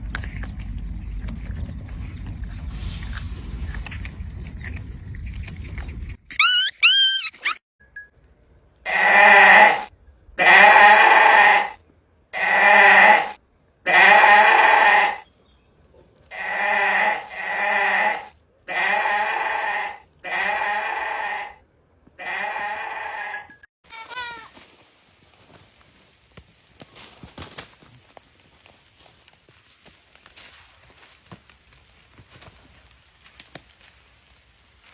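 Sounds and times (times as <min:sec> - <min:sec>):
livestock bleating: 0:08.9 - 0:11.8, 0:12.4 - 0:15.2, 0:16.3 - 0:21.6, 0:22.2 - 0:23.3.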